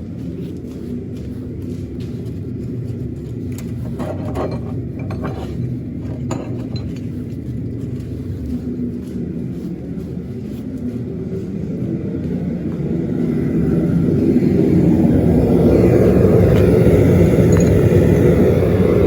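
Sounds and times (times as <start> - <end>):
steady low rumble: 0.0 - 19.0
light metallic clinks: 3.5 - 7.3, 17.4 - 18.4.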